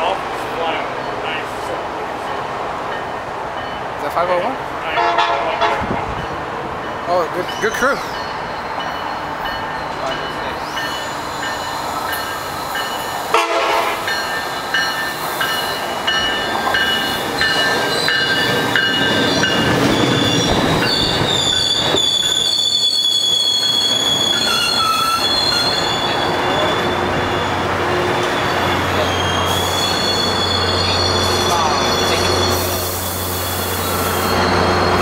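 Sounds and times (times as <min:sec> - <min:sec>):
train pulling into station: 0:00.0 - 0:35.0
wheels and brakes squealing: 0:07.5 - 0:13.2, 0:16.8 - 0:35.0.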